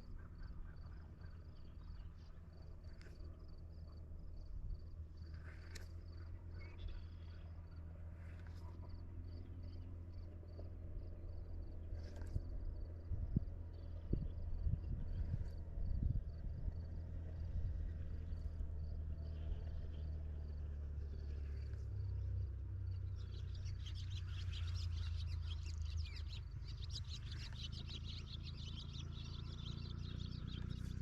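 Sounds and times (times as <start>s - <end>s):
birds chirping: 22.9s - 31.0s.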